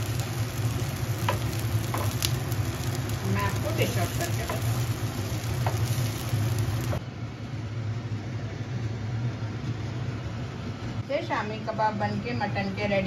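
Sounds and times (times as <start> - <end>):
kebabs sizzling in oil: 0.0 - 7.0
steady low hum: 0.0 - 13.0.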